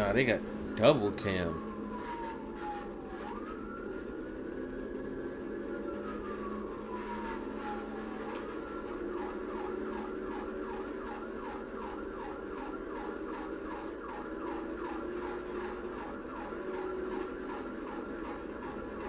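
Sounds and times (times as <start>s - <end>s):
steady low hum: 0.0s - 1.7s
police siren wailing and yelping: 0.0s - 19.0s.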